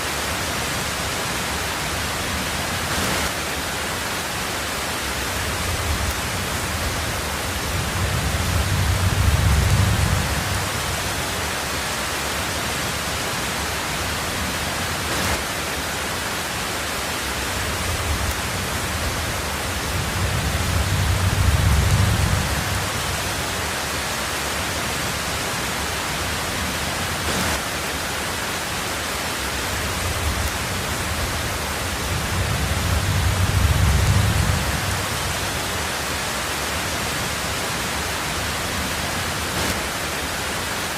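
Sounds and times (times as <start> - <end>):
heavy rain on a tin roof: 0.0 - 40.9
low rumbles of thunder: 5.4 - 11.4, 17.6 - 23.5, 29.8 - 35.7.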